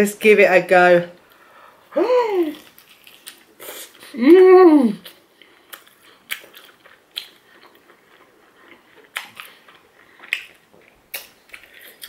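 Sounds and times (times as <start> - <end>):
crunchy chewing: 2.5 - 4.1, 5.0 - 12.0.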